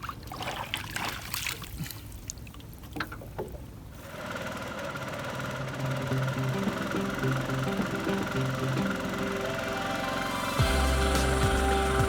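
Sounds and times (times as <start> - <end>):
water trickling and splashing: 0.0 - 4.0
background music with low notes: 5.9 - 12.0.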